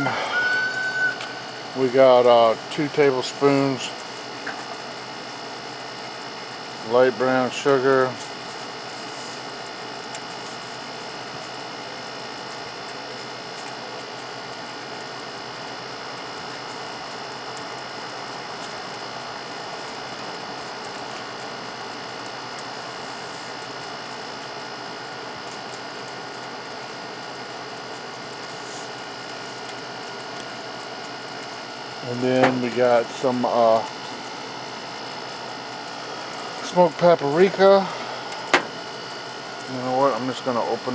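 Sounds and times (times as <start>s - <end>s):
faint steady tones: 0.0s - 3.6s.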